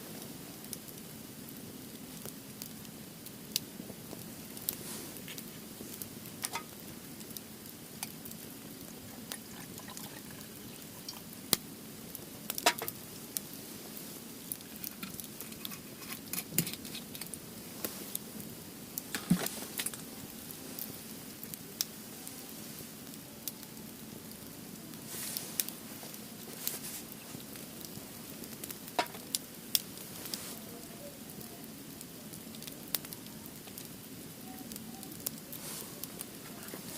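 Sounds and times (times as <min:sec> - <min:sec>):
soft hiss of fire: 0:00.0 - 0:36.9
wood fire crackling: 0:00.0 - 0:36.9
sharp pops and snaps: 0:03.5 - 0:06.8, 0:12.5 - 0:13.0.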